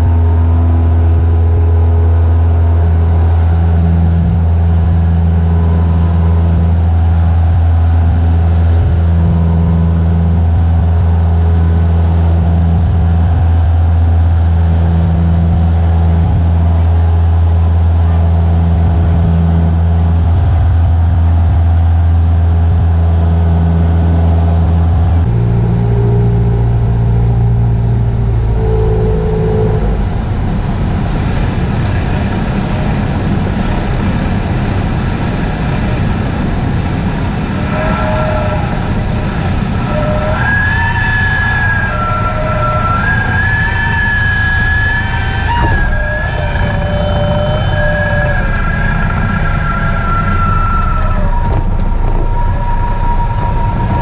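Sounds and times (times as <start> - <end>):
plane engine droning in cabin: 0.0 - 54.0
tune of held notes: 25.0 - 34.2.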